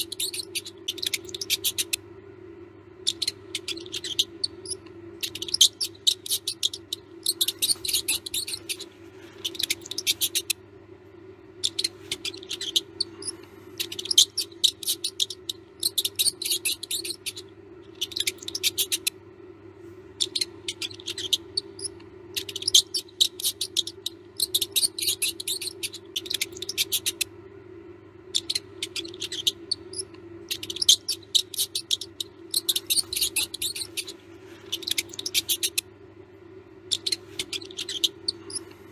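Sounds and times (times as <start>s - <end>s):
mouse squeaks: 0.0s - 2.1s, 3.0s - 10.6s, 11.5s - 19.2s, 20.2s - 27.3s, 28.2s - 36.0s, 36.7s - 38.9s
low hum: 0.0s - 38.9s
mouse scratching and scurrying: 3.6s - 10.4s.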